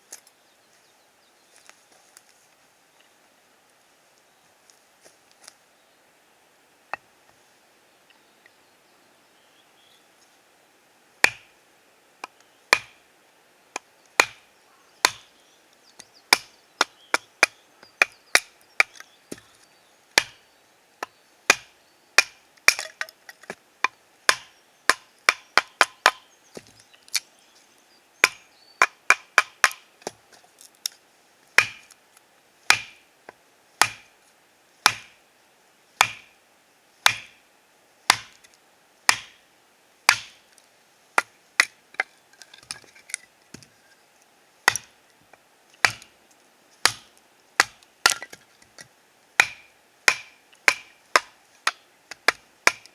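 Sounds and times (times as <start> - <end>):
knife chopping wood: 11.2 - 11.5, 12.7 - 13.0, 13.8 - 14.4, 15.0 - 15.3, 21.5 - 23.0, 24.3 - 26.7, 28.2 - 30.2, 31.6 - 31.9, 32.7 - 33.0, 33.8 - 34.1, 34.8 - 35.2, 36.0 - 36.3, 37.0 - 37.4, 38.1 - 38.5, 39.1 - 39.4, 40.1 - 40.4, 44.7 - 44.9, 45.8 - 46.1, 46.8 - 48.4, 49.4 - 52.9.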